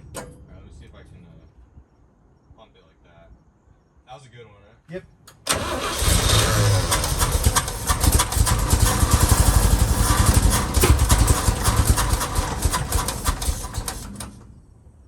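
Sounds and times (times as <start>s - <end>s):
engine running roughly: 5.5s - 14.6s.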